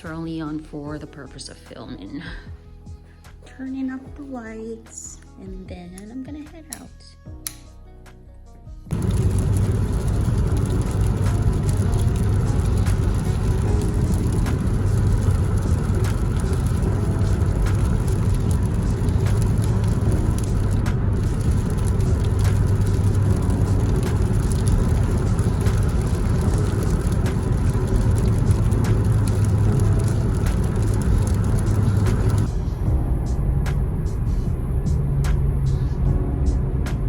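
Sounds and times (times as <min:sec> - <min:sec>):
car engine rumble: 0:08.9 - 0:37.0
road noise: 0:08.9 - 0:37.0.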